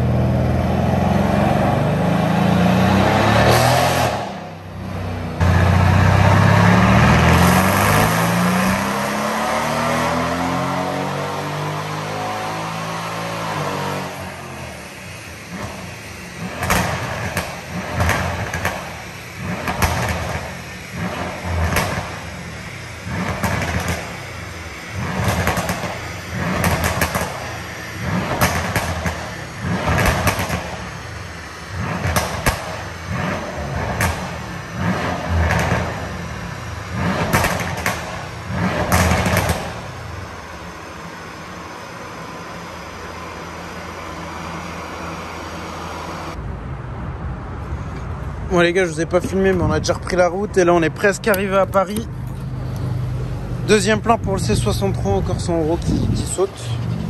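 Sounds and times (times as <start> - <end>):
car engine revving: 0.0 - 46.5, 47.2 - 57.0
exhaust pops: 15.5 - 40.5, 53.6 - 57.0.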